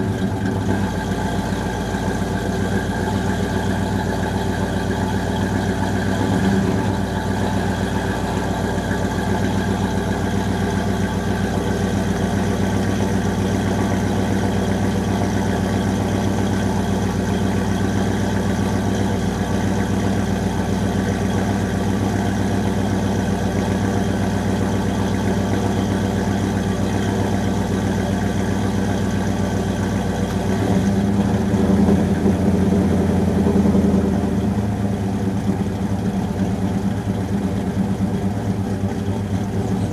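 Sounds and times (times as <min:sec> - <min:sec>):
car engine idling with a lope: 0:00.0 - 0:39.9
engine revving: 0:06.0 - 0:08.5.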